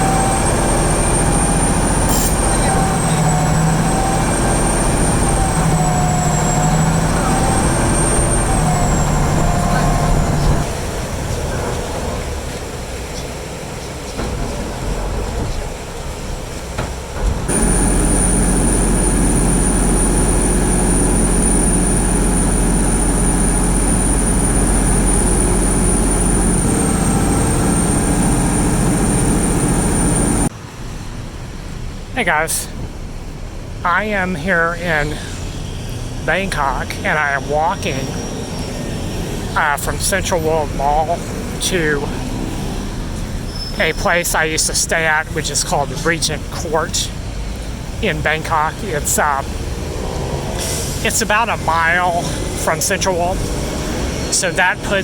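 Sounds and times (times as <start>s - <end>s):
loud engine noise: 0.0s - 55.0s
vehicle ride rumble: 0.0s - 55.0s
high wavering whine: 17.5s - 30.5s
low hum: 17.5s - 30.5s.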